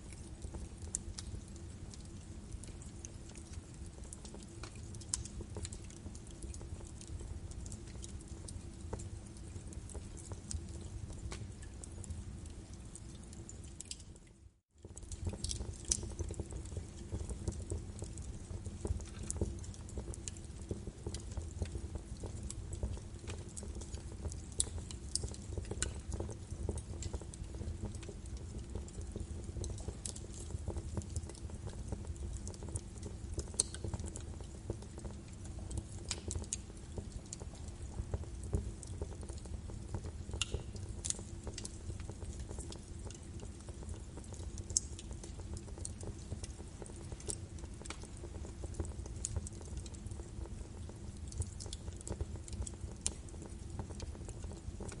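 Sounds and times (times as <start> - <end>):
fire crackles and pops: 0.0 - 55.0
logs burning in a fireplace: 0.0 - 55.0.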